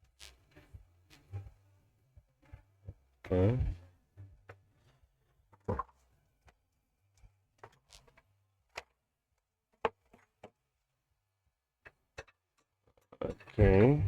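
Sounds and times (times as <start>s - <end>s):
faint low hum: 0.0s - 4.6s, 13.2s - 14.0s.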